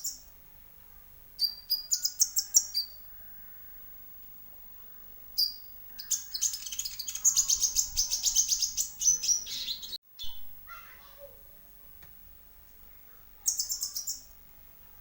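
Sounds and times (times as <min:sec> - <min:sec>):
bird high sharp chirps: 0:01.4 - 0:03.0, 0:05.4 - 0:10.5, 0:13.4 - 0:14.3.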